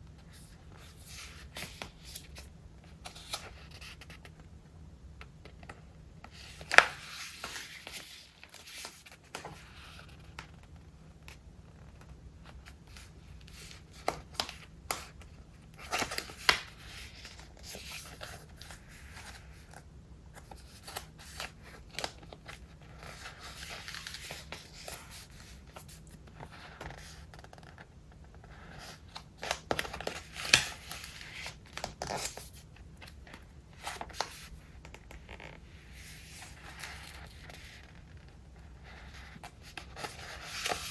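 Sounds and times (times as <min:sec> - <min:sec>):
pages flipping: 0:06.3 - 0:19.8, 0:20.4 - 0:27.8, 0:28.8 - 0:38.3, 0:39.2 - 0:40.9.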